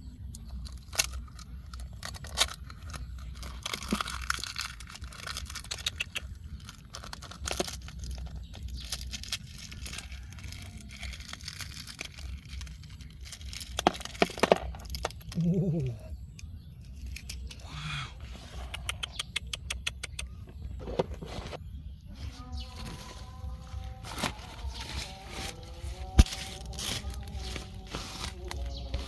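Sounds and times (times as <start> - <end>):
dry plant debris crumpling: 0.4 - 15.7, 22.2 - 29.0
sharp snaps: 18.6 - 20.5.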